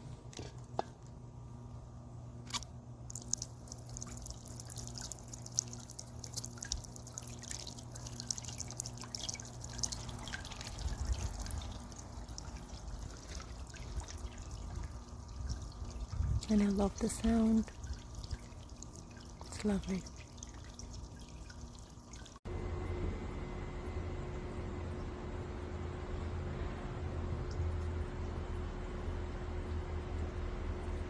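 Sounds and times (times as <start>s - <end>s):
fountain water splashing: 3.1s - 22.2s.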